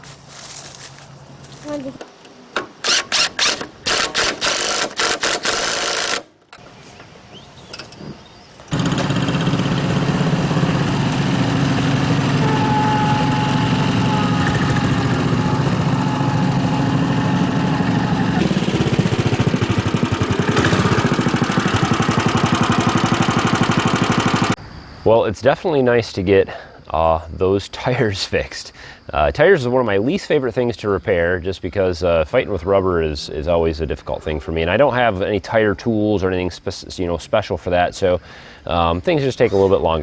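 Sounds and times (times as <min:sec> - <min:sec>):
small engine starting and running: 0:02.8 - 0:06.3, 0:08.7 - 0:24.6.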